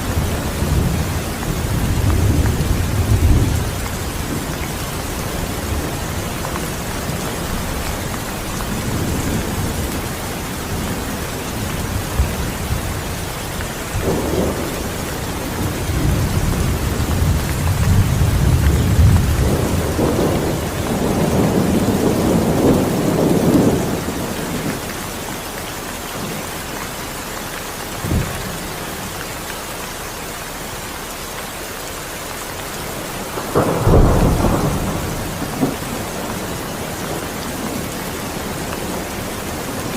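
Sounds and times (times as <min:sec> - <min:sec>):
rolling thunder: 0:00.0 - 0:25.0, 0:33.0 - 0:39.9
heavy rain: 0:00.0 - 0:39.9
thunderclap: 0:00.1 - 0:24.8, 0:33.2 - 0:39.9.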